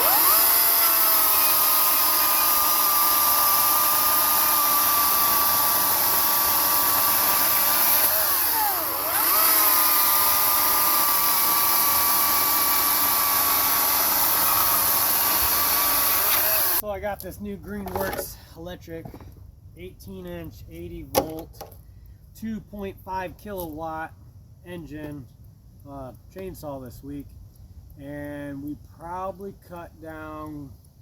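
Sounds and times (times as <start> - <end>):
electric chainsaw whining: 0.0 - 16.8.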